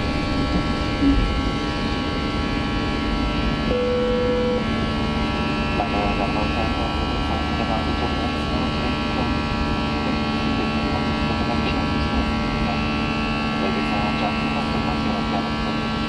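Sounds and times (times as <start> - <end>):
airliner cabin hum: 0.0 - 15.7
single beep: 3.7 - 4.6.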